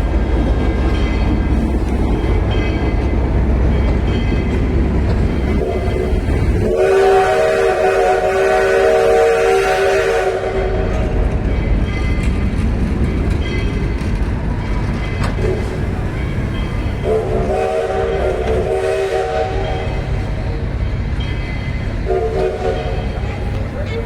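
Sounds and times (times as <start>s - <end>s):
train rumbling: 0.0s - 24.0s
multi-tone train whistle: 5.4s - 11.2s, 17.0s - 20.5s, 21.9s - 24.0s.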